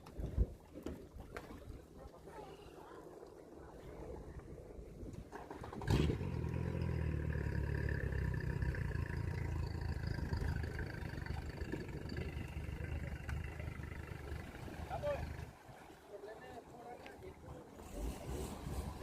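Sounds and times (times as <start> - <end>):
motor engine running: 5.8 - 15.5.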